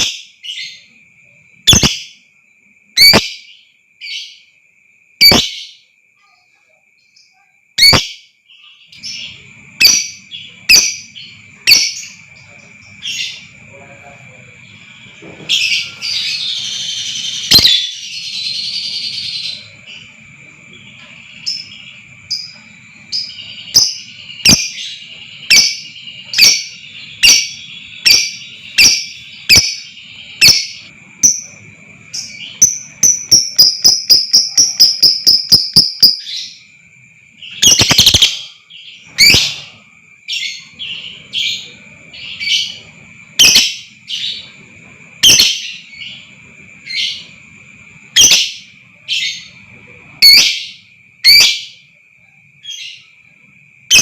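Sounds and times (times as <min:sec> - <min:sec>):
lovebird shrill chirps and chattering: 0:00.0 - 0:00.9, 0:01.7 - 0:02.2, 0:03.0 - 0:04.3, 0:05.2 - 0:05.8, 0:07.8 - 0:08.3, 0:08.9 - 0:13.6, 0:15.6 - 0:20.0, 0:23.1 - 0:31.6, 0:32.2 - 0:36.6, 0:37.5 - 0:38.5, 0:43.4 - 0:44.3, 0:45.2 - 0:46.1, 0:48.2 - 0:49.4, 0:50.2 - 0:51.7
thin steady high tone: 0:00.0 - 0:54.0.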